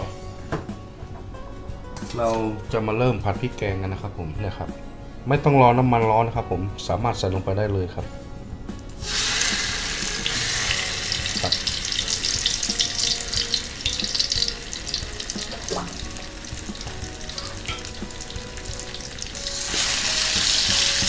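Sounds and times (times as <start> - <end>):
curry paste sizzling in a wok: 9.0 - 21.0.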